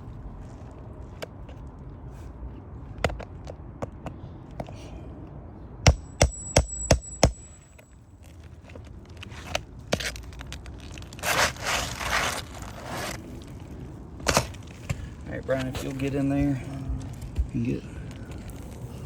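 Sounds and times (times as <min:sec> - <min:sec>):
hammer strikes on metal: 0:05.8 - 0:07.5
shingle scraping: 0:08.2 - 0:16.2.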